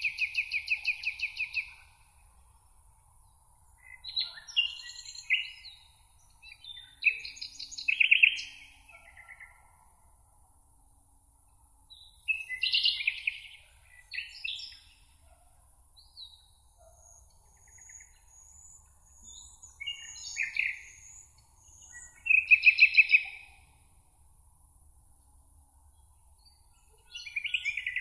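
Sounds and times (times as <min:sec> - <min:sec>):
birds chirping song: 0:00.0 - 0:02.0, 0:03.3 - 0:09.7, 0:11.9 - 0:15.4, 0:16.0 - 0:23.7, 0:26.0 - 0:28.0.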